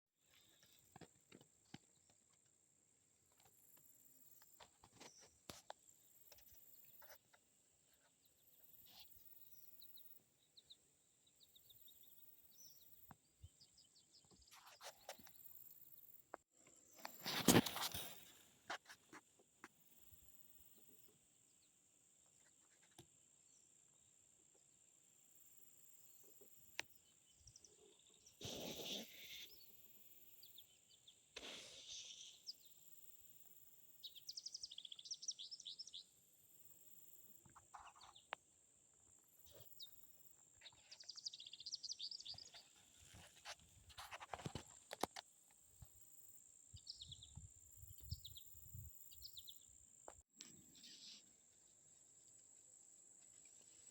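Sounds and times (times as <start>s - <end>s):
small birds chirping and trilling: 3.6s - 18.4s, 26.1s - 38.4s, 39.2s - 43.6s, 46.6s - 49.8s, 50.4s - 52.0s.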